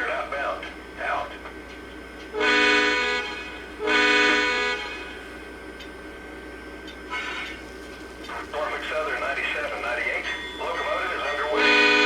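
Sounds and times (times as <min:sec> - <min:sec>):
locomotive air horn blasts: 0:02.3 - 0:05.2, 0:07.1 - 0:07.6, 0:11.5 - 0:12.0.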